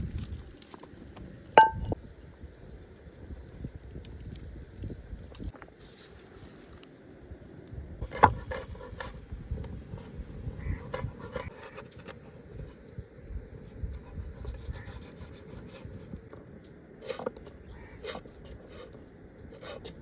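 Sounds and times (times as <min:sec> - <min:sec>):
rubbing and scraping: 0:08.0 - 0:12.9, 0:13.7 - 0:16.3, 0:17.0 - 0:20.0.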